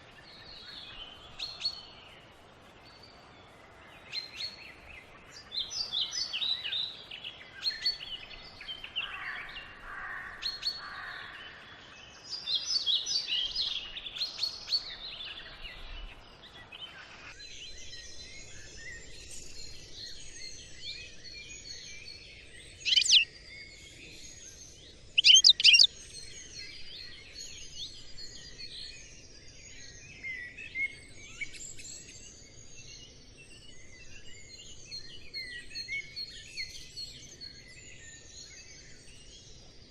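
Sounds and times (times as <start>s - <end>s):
small birds chirping and twittering: 0.0s - 39.9s
sharp bird calls: 22.7s - 23.3s, 25.2s - 25.9s.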